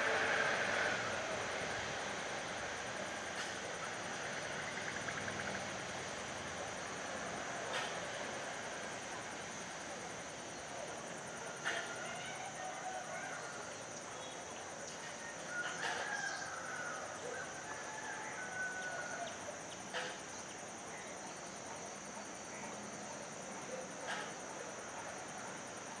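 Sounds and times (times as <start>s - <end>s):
rooster crowing: 15.3s - 19.3s.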